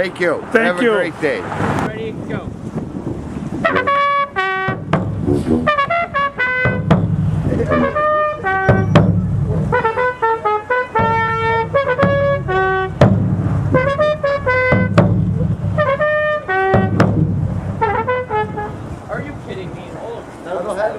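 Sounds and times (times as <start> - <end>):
steady beat: 3.6 - 18.6
trumpets playing melody: 3.6 - 19.0
sharp percussive strike: 4.7 - 5.9, 8.6 - 9.6, 16.8 - 17.9.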